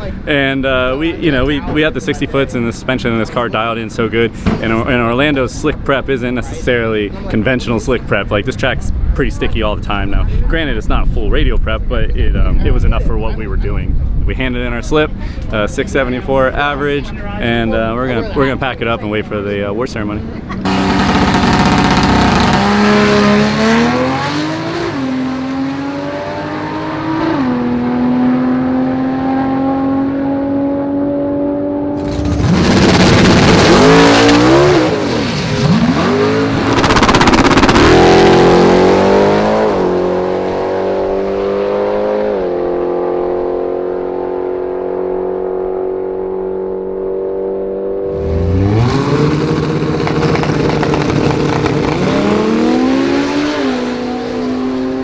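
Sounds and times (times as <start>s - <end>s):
racing car engines accelerating: 20.2s - 55.0s.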